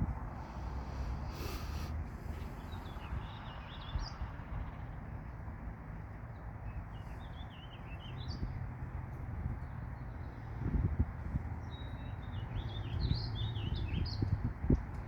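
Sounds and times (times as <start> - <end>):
songbird twittering: 2.4 - 4.8, 11.6 - 14.4.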